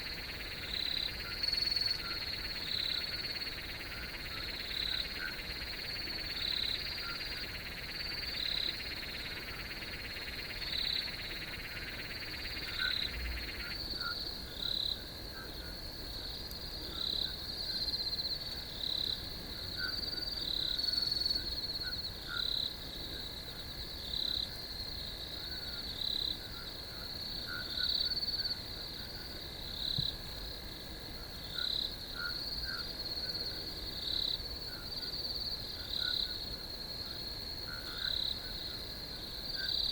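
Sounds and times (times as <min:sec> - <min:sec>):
frog call: 0:00.0 - 0:14.8, 0:27.4 - 0:29.2, 0:31.5 - 0:33.6, 0:37.6 - 0:38.6
crickets trilling: 0:00.0 - 0:39.9.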